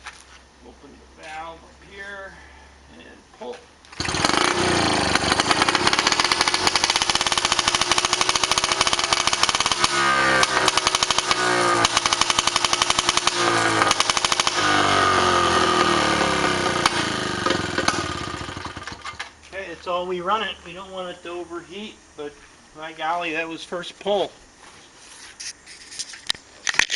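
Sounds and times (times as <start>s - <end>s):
outboard motor running: 4.0s - 18.8s.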